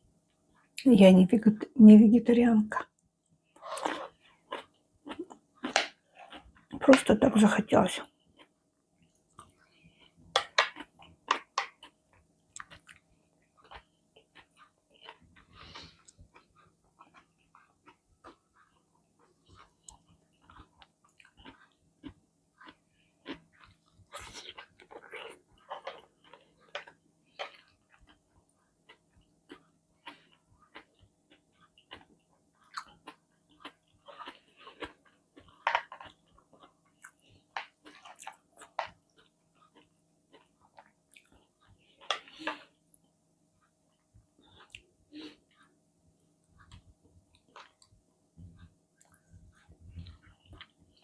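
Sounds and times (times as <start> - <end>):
person chewing and biting food: 3.5 - 6.7, 9.3 - 43.1.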